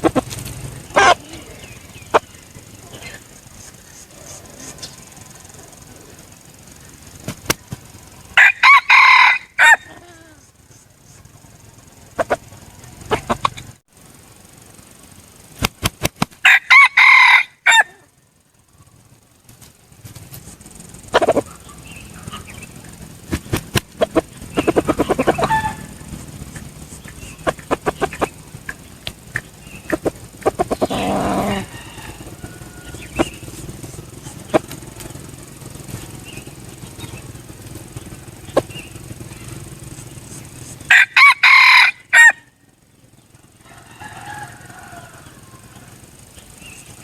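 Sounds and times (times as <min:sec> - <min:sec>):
sharp clicks and clucks: 0:00.0 - 0:18.1, 0:18.7 - 0:47.0
rooster crowing: 0:08.0 - 0:10.4, 0:16.4 - 0:18.2, 0:24.1 - 0:26.2, 0:29.7 - 0:35.0, 0:40.8 - 0:42.6, 0:43.6 - 0:46.2.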